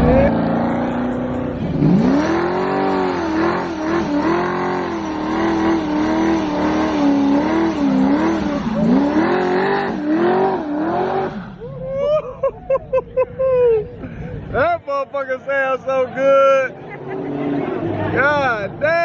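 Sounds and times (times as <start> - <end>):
car engine revving high: 0.0 - 11.6.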